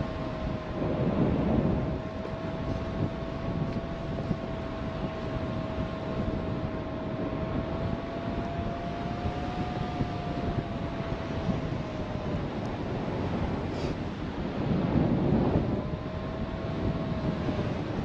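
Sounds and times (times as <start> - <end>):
faint steady whine: 0.0 - 18.0
strong wind over microphone: 0.0 - 18.0.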